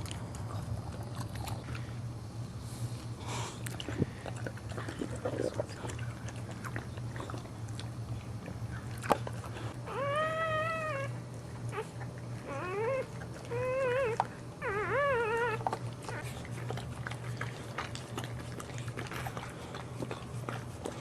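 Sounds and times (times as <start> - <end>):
puppy crying: 9.8 - 16.4.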